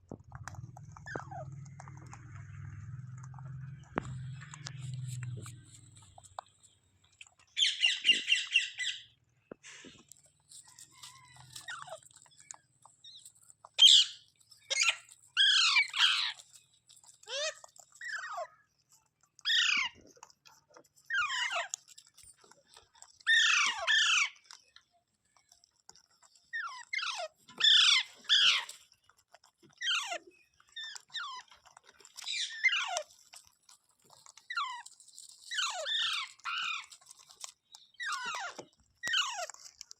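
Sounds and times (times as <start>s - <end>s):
parakeet shrill calls: 7.6s - 9.1s.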